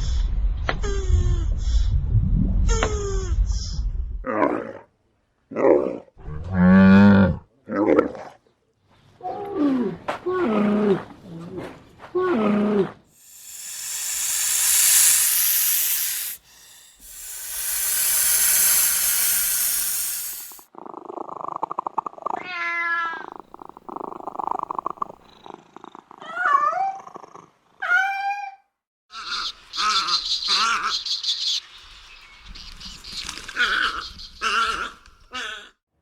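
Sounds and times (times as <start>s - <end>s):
high chirps: 13.2s - 20.6s
animal hissing: 13.2s - 20.7s
rattling purr or growl: 14.3s - 22.4s.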